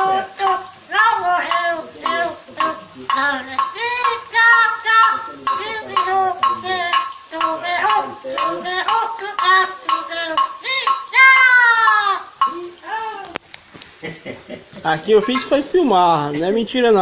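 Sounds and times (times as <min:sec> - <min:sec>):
parrot chattering: 0:00.0 - 0:12.8.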